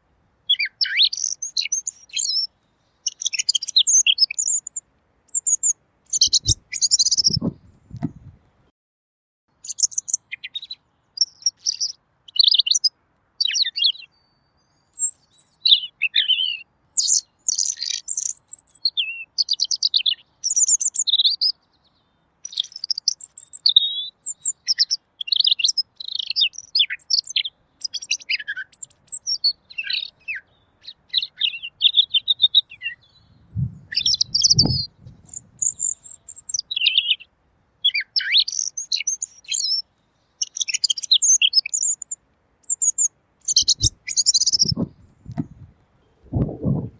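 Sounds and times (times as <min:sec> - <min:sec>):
bird chirping and twittering: 0:00.5 - 0:08.3, 0:09.6 - 0:21.6, 0:22.4 - 0:39.8, 0:40.4 - 0:46.9
low thumps: 0:07.3 - 0:08.4, 0:33.5 - 0:33.9, 0:44.6 - 0:46.9.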